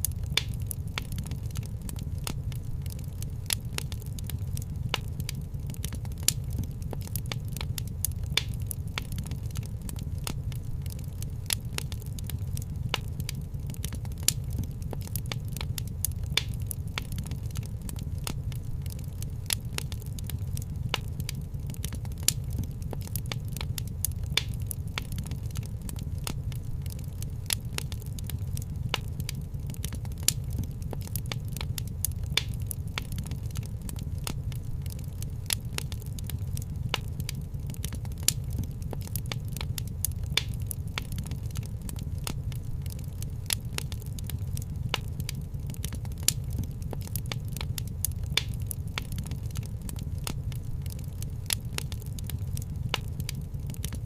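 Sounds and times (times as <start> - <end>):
low steady rumble: 0.0 - 54.0
wood fire crackling and popping: 0.0 - 54.0.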